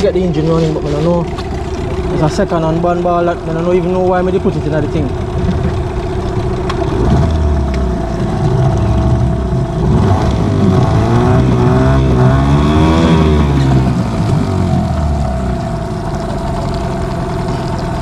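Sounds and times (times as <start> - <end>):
outboard boat motor running: 0.0 - 18.0.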